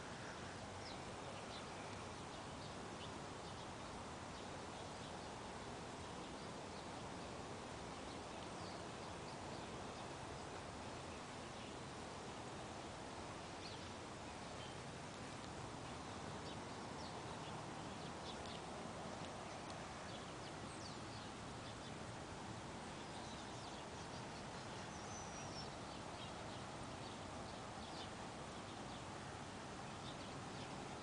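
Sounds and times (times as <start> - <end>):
faint bird chirps: 0.0 - 7.0, 13.1 - 22.1, 22.9 - 31.0
background hiss: 0.0 - 31.0.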